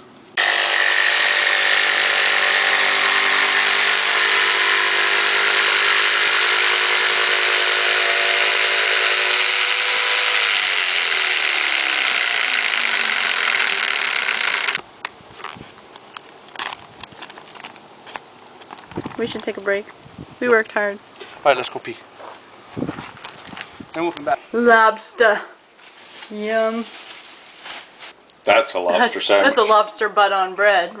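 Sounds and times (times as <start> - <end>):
electric power saw whine: 0.4 - 14.8.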